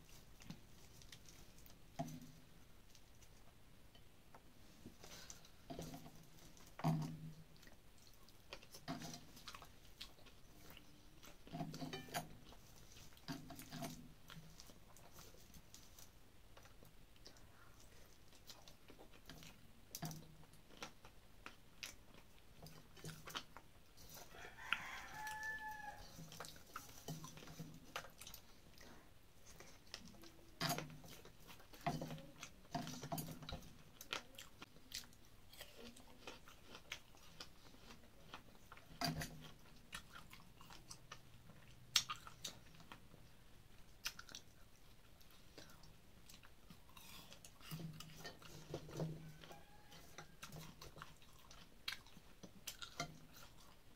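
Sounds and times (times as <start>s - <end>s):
crunchy chewing: 0.0s - 53.9s
rooster crowing: 24.3s - 26.2s, 49.1s - 50.5s.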